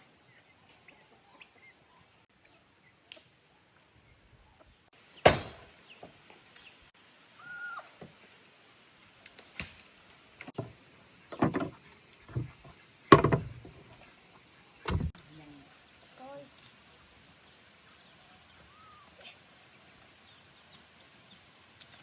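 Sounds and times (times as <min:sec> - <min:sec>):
irregular knocks and thuds: 0:10.5 - 0:14.0, 0:14.9 - 0:15.2.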